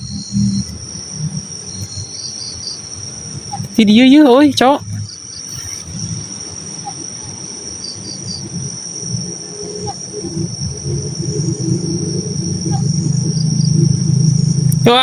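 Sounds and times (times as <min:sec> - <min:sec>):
low rumble: 0:00.0 - 0:02.0, 0:08.4 - 0:15.0
crickets trilling: 0:00.0 - 0:15.0.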